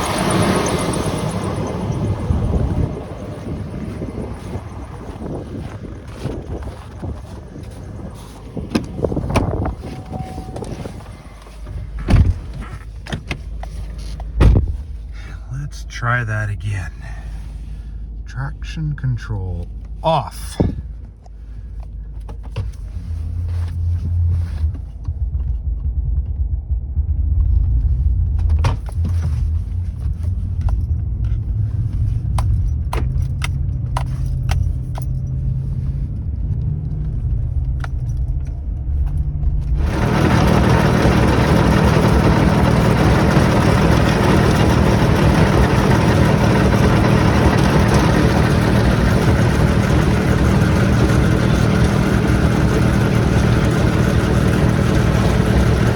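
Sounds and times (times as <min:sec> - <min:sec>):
vehicle engine under load: 0:00.0 - 0:55.9
loud steady rushing noise: 0:39.8 - 0:55.9.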